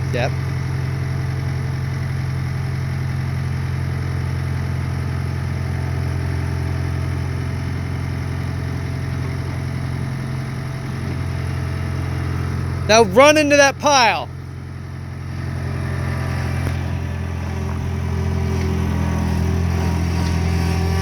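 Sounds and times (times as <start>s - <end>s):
skid steer engine running: 0.0s - 21.0s.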